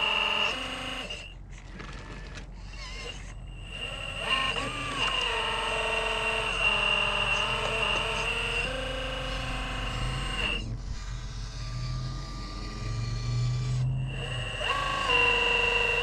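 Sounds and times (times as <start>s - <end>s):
electric motor whining: 0.0s - 16.0s
low hum: 6.6s - 15.9s.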